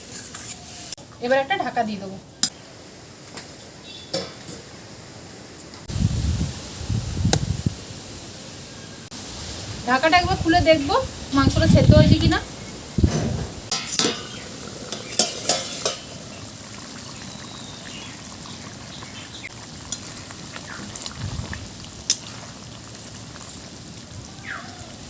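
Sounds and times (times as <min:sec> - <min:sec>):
food sizzling in a pot: 0:00.0 - 0:02.5, 0:05.8 - 0:13.0, 0:13.7 - 0:25.0
lid and utensil clanking on pot: 0:13.7 - 0:16.2.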